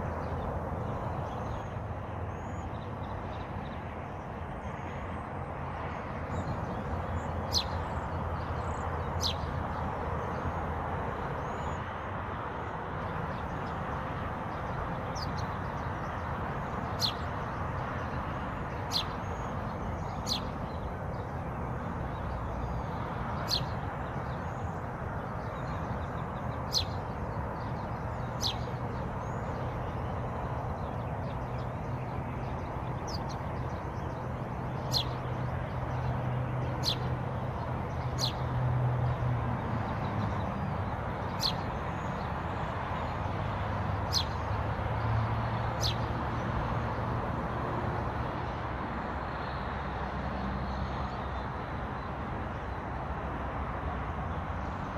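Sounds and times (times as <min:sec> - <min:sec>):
birds chirping: 0:00.0 - 0:12.0, 0:12.6 - 0:46.7
rushing background noise with hum: 0:00.0 - 0:54.9
high bird twittering: 0:44.1 - 0:44.4.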